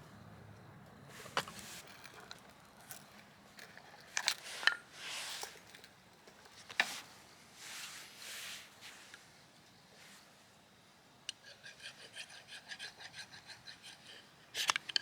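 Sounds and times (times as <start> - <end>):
hissing rustles: 1.1 - 2.4, 4.4 - 5.7, 6.5 - 9.4
objects clinking and knocking: 1.2 - 6.6.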